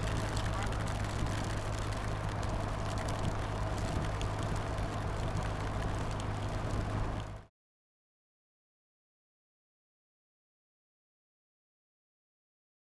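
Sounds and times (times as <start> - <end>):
motorcycle engine hum: 0.0 - 7.4
wet road noise: 0.0 - 7.5
wind: 0.0 - 7.5.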